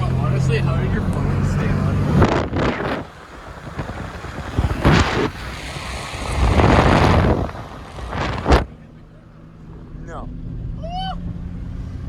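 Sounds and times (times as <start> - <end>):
car driving: 0.0 - 12.0
wind on microphone: 1.8 - 8.7.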